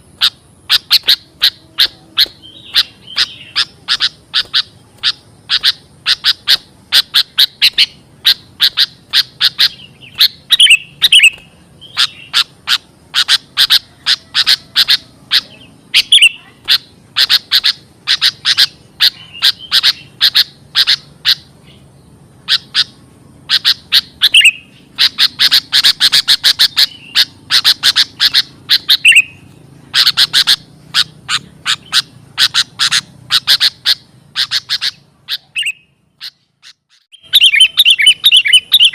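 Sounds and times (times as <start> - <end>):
bird rapid chattering calls: 0.0 - 38.9.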